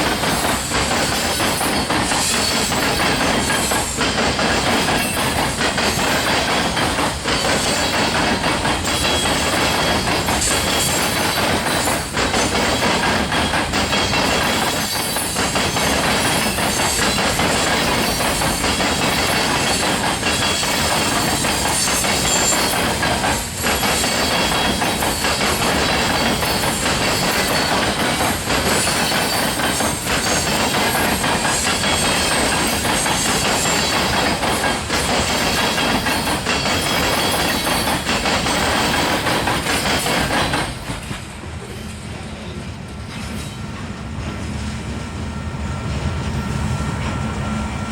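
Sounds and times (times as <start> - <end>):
freight train wheels on rails: 0.0 - 47.9.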